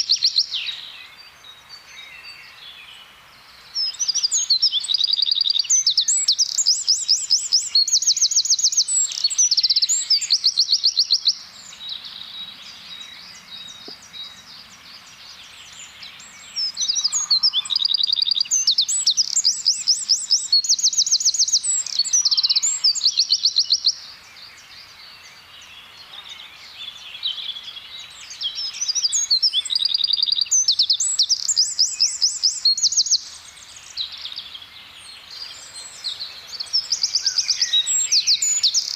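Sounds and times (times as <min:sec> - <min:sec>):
wren singing rapid trills: 0:00.0 - 0:02.7, 0:03.6 - 0:38.9
faint bird calls: 0:03.8 - 0:23.8.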